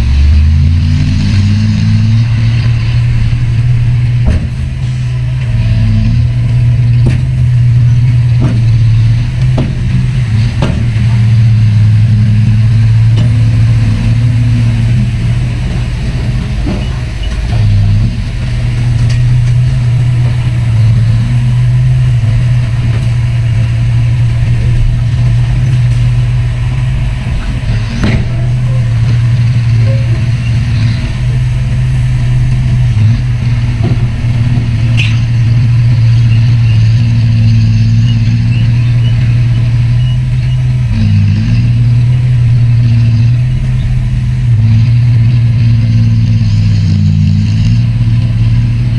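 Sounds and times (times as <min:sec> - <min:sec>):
heavy diesel engine droning: 0:00.0 - 0:48.9
sharp knocks: 0:04.2 - 0:04.8, 0:08.4 - 0:11.2.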